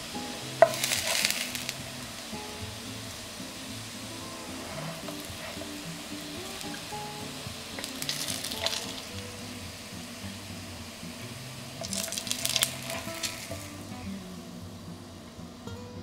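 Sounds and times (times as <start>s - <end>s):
pancakes sizzling in oil: 0.0s - 15.3s
soft background music: 0.0s - 16.0s
spatula scraping a pan: 0.6s - 1.8s, 4.3s - 6.9s.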